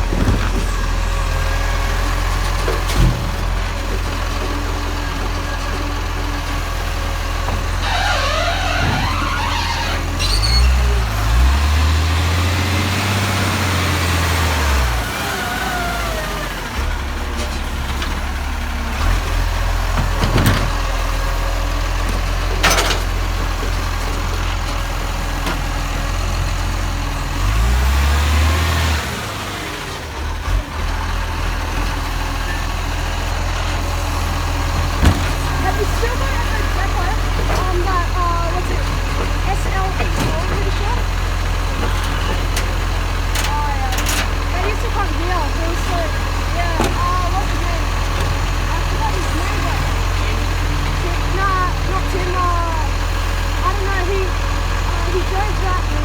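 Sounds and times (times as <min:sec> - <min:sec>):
diesel truck engine revving: 0:00.0 - 0:56.0
squealing whine: 0:07.8 - 0:11.1.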